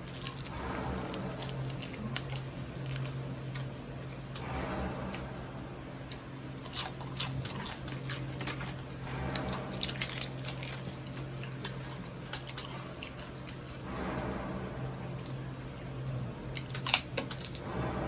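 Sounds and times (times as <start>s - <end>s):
chewing crispy skin crunches: 0.0s - 5.3s, 6.1s - 13.8s, 16.6s - 17.7s
low hum: 0.0s - 18.0s.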